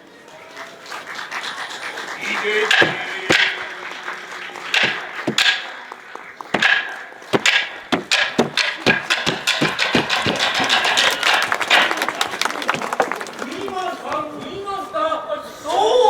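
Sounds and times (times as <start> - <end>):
wooden clappers striking wood: 2.7 - 13.2.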